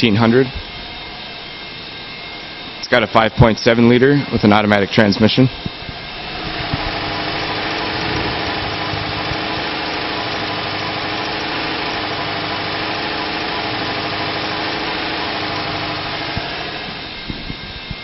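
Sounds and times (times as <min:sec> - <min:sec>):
truck engine idling: 0:05.9 - 0:17.2.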